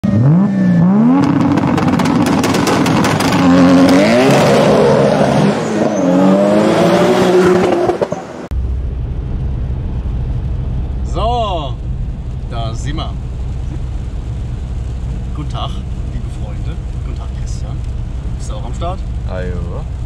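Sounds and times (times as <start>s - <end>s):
car engine accelerating: 0.0s - 20.0s
road noise inside car cabin: 0.1s - 20.0s.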